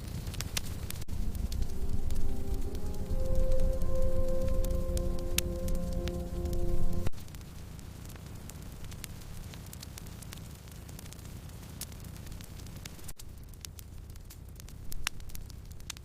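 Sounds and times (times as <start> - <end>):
wood fire crackling and popping: 0.0 - 16.0
background music: 0.9 - 7.1.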